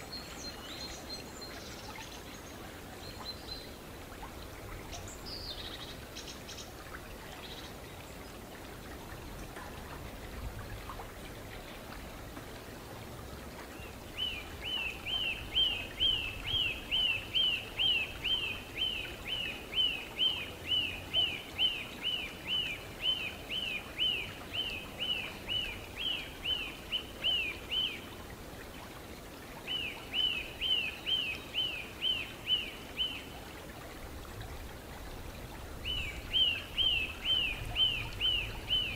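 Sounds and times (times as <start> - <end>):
background hiss: 0.0 - 38.9.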